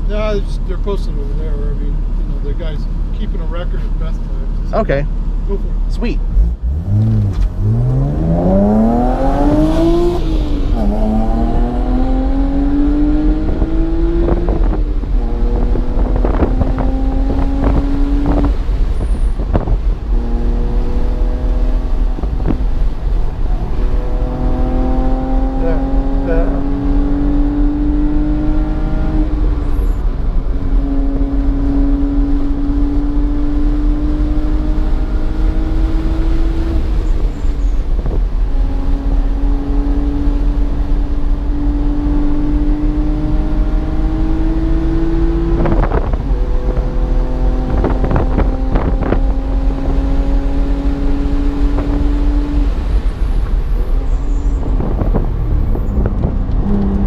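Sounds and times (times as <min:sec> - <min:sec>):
car engine accelerating through gears: 0:06.2 - 0:57.0
heavy low rumble: 0:45.1 - 0:57.0.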